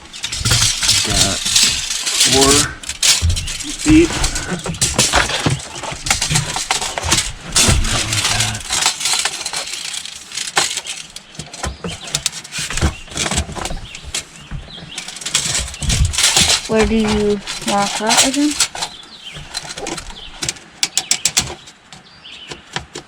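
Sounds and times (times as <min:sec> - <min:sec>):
clicks and knocks on boat floor: 0:10.4 - 0:23.0.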